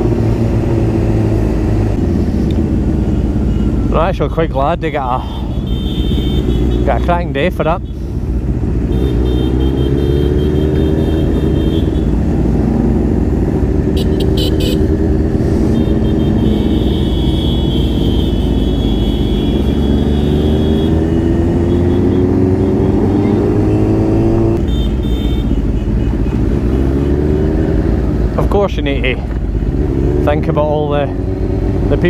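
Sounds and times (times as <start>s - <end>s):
motorcycle engine running: 7.8s - 28.4s.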